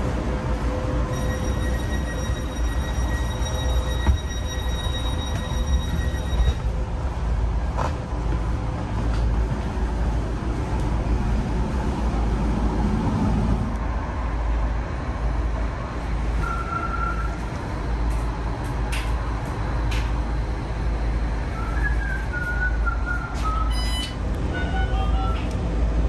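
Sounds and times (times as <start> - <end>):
train engine low rumble: 0.0 - 26.0
short beep: 1.1 - 6.6, 23.7 - 25.4.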